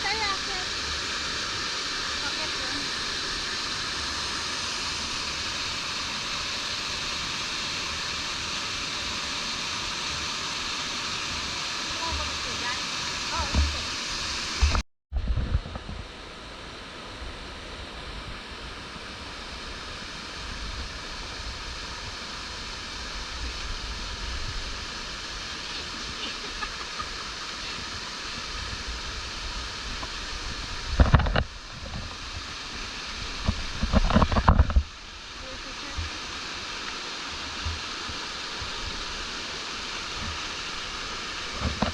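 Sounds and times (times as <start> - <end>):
stream water flowing: 0.0 - 14.8, 15.7 - 41.9.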